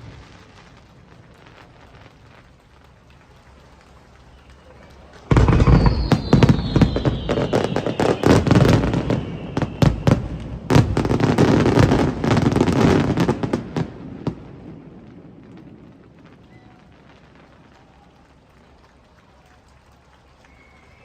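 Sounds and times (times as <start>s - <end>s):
fireworks bangs and crackles: 0.0s - 21.0s
falling firework whistle: 3.6s - 13.8s, 16.3s - 18.2s, 20.4s - 21.0s.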